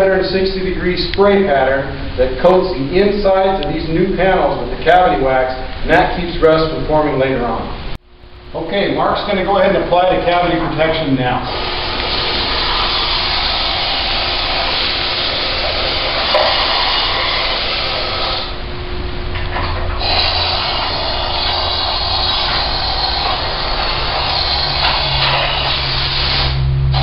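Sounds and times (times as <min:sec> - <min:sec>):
spray wand hissing: 0:11.4 - 0:18.6, 0:20.0 - 0:27.0.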